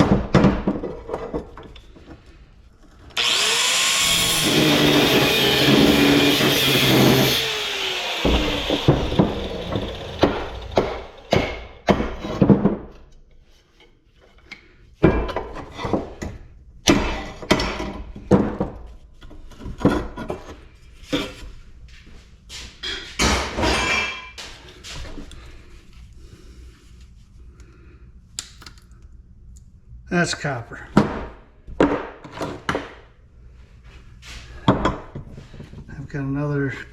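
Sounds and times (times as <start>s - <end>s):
knocks on scrap metal: 8.2s - 12.9s.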